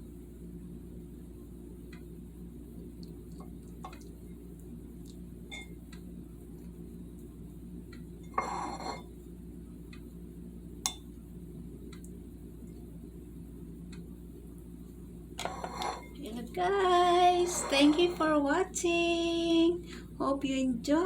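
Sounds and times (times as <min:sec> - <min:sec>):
steady low hum: 0:00.0 - 0:21.0
kitchenware clattering: 0:08.3 - 0:09.0, 0:15.4 - 0:16.2
kitchenware clinking: 0:08.3 - 0:09.1, 0:15.4 - 0:16.2.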